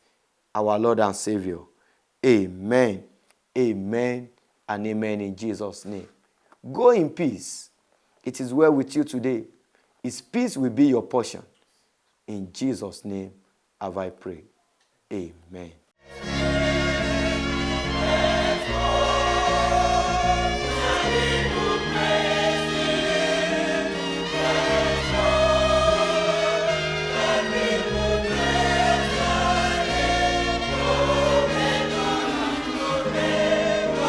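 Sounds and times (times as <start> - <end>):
gospel choir singing: 16.1 - 34.0
instrumental chords and bass line: 16.1 - 34.0.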